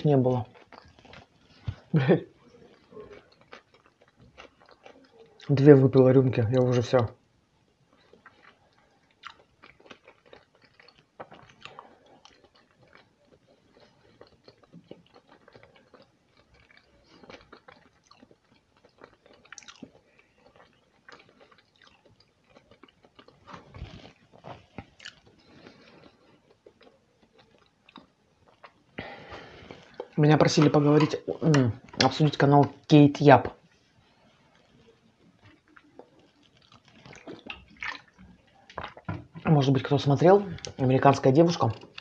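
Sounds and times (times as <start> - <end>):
person chewing: 0.0 - 5.8, 7.9 - 42.0.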